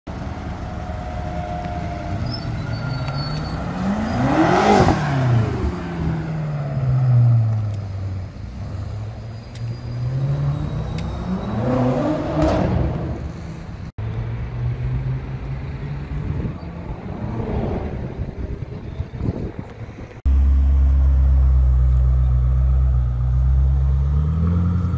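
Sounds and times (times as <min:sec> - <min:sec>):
car engine driving past: 0:09.7 - 0:13.9, 0:14.5 - 0:18.9.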